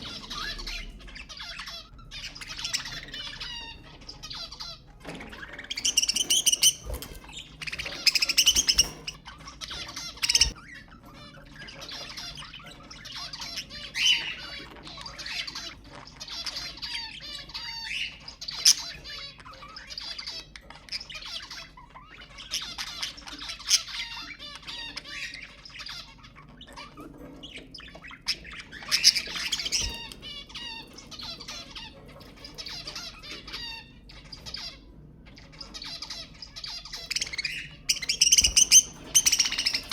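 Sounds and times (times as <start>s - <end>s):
budgerigars chattering and warbling: 0.0s - 39.9s
budgerigar sharp squawks: 28.4s - 39.9s.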